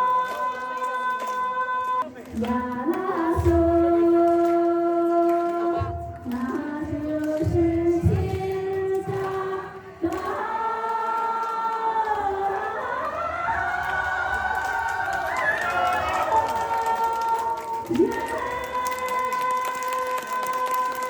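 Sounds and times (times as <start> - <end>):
voices singing long notes: 9.3 - 19.7.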